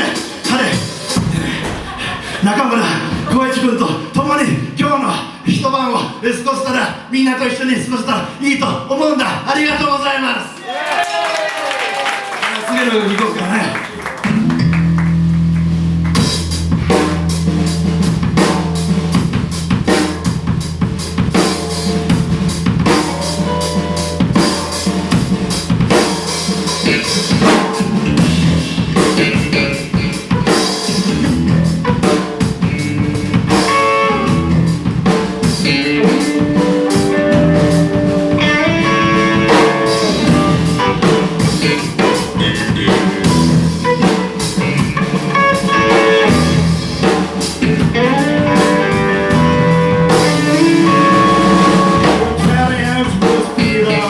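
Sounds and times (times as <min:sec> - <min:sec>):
drum kit: 0:00.0 - 0:04.9, 0:13.0 - 0:54.0
guitar: 0:13.8 - 0:54.0
bass guitar: 0:14.0 - 0:54.0.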